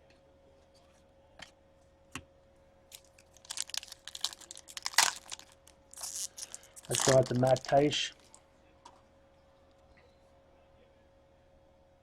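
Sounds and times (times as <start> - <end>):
card packs crinkling: 2.9 - 8.4.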